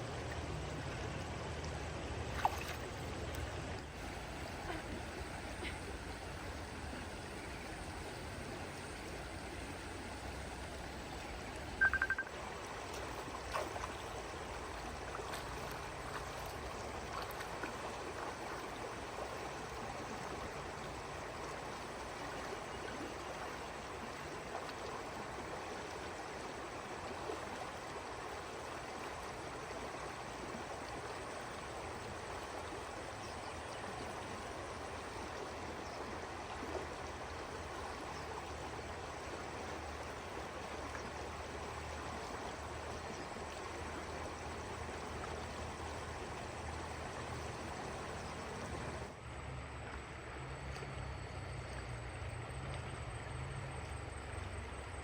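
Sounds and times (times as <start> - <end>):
flowing water rushing: 0.0 - 55.0
low hum: 2.3 - 16.6
short sharp high chirp: 11.8 - 12.3.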